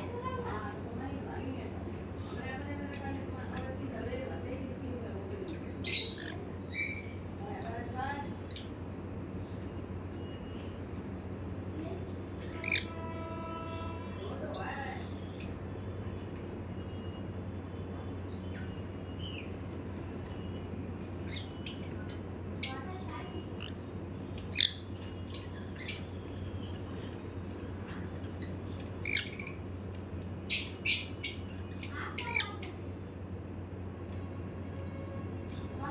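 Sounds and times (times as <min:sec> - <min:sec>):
low steady hum: 0:00.0 - 0:35.9
parrot chirps and squawks: 0:05.5 - 0:07.8, 0:12.3 - 0:15.5, 0:21.2 - 0:26.3, 0:28.3 - 0:32.8.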